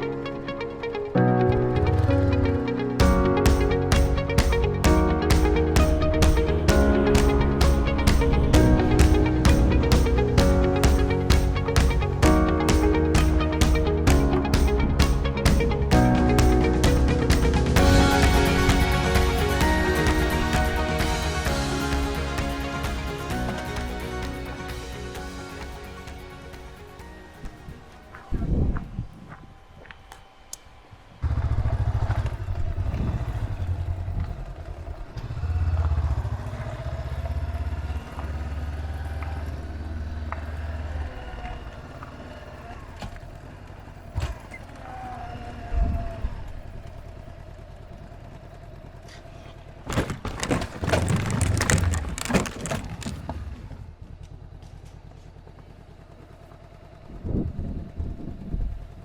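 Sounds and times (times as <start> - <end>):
motorcycle engine rumble: 31.2 - 59.0
clattering knocks: 49.9 - 53.5.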